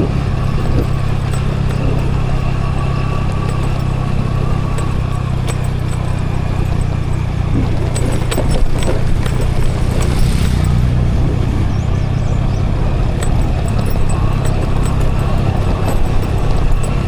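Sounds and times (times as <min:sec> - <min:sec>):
sharp rattling clicks: 0:00.0 - 0:11.1, 0:12.2 - 0:17.0
scooter engine hum: 0:00.0 - 0:17.0
wind rumble on microphone: 0:00.0 - 0:17.0.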